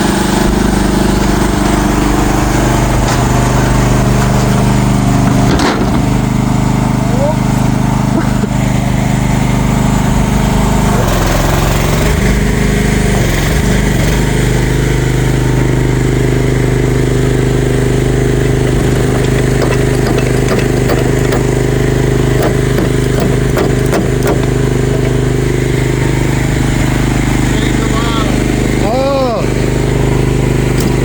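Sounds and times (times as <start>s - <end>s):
engine running: 0.0s - 31.0s
light clanks: 18.8s - 25.4s.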